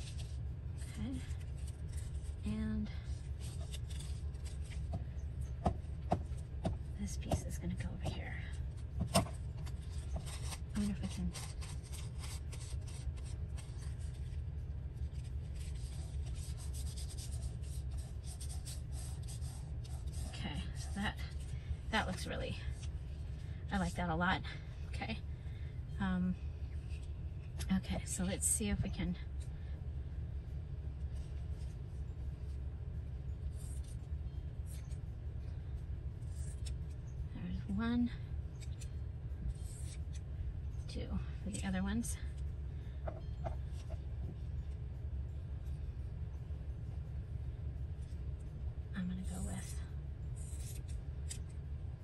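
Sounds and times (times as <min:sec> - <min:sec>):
paper rustling: 0:00.0 - 0:00.4, 0:01.1 - 0:02.4, 0:03.0 - 0:05.0, 0:09.0 - 0:14.4, 0:15.0 - 0:21.6
steady low hum: 0:00.0 - 0:52.0
paper rubbed by hand: 0:15.0 - 0:21.5.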